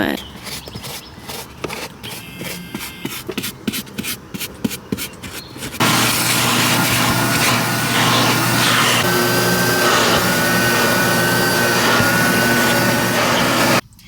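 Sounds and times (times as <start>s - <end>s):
toothbrush scrubbing: 5.8s - 13.8s.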